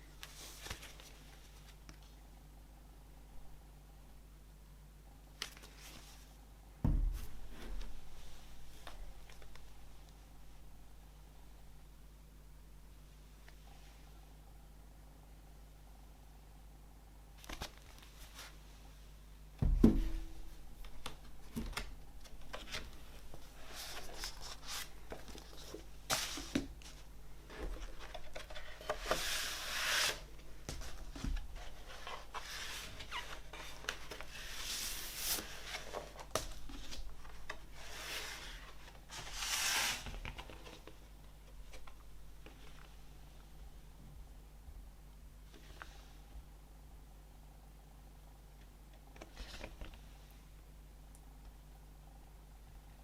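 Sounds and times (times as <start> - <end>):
thump: 6.8 - 7.3, 19.6 - 20.2.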